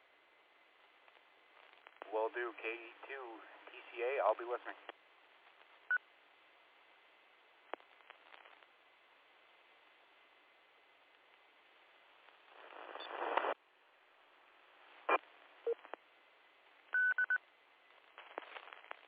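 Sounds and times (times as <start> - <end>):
radio receiver hiss: 7.6 - 8.8, 12.2 - 13.6, 17.9 - 19.0
radio clicks: 12.3 - 13.6
radio static burst: 12.4 - 13.6.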